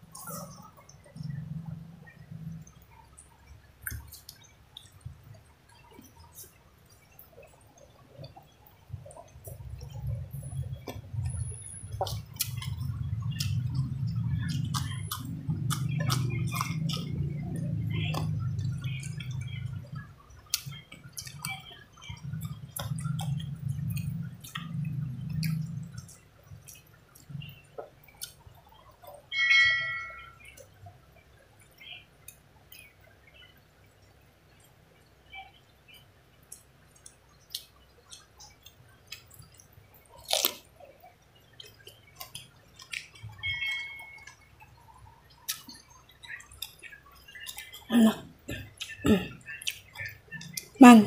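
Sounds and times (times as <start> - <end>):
person chewing food: 0.0 - 1.8, 3.8 - 29.2, 36.5 - 44.6, 45.3 - 50.8
low steady rumble: 0.0 - 31.9
wet mouth clicks and smacks: 3.8 - 5.0, 22.2 - 27.3, 45.5 - 47.8, 48.5 - 50.7
bright bell ring: 29.4 - 30.4.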